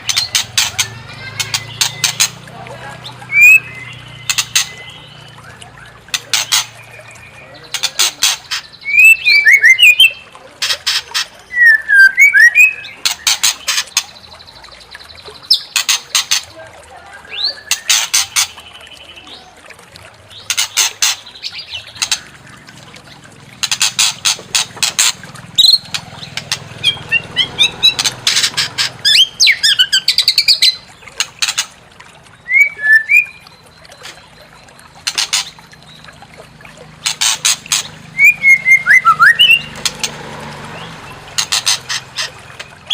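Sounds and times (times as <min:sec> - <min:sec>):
bird harsh stuttering rattles: 0:06.1 - 0:06.8, 0:23.6 - 0:29.5, 0:37.0 - 0:38.0
bird whistled notes: 0:11.5 - 0:12.9, 0:32.5 - 0:33.5, 0:38.2 - 0:39.7.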